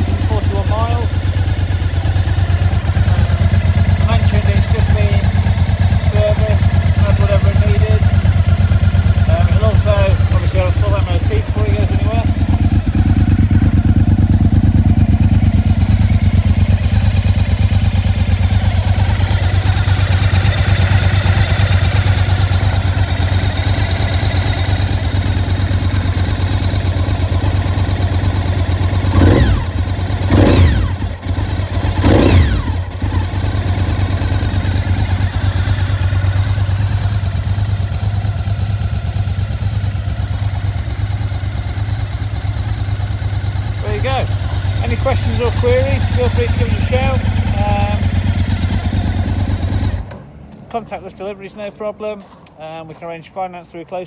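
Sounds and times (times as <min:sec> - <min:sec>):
engine revving: 0:00.0 - 0:50.2
motorcycle engine idling: 0:00.0 - 0:50.2.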